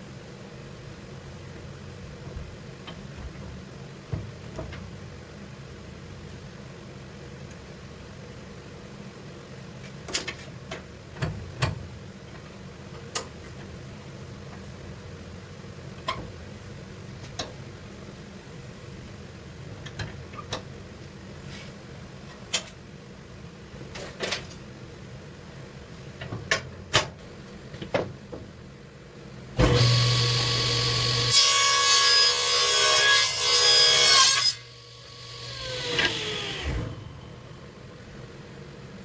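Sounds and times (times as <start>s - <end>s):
saw cutting board: 29.6s - 37.0s
table saw motor hum and whine: 29.6s - 37.8s.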